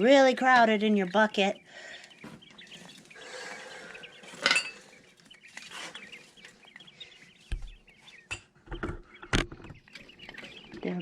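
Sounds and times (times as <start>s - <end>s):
chicks peeping: 0.0s - 11.0s
containers clattering: 4.3s - 4.9s.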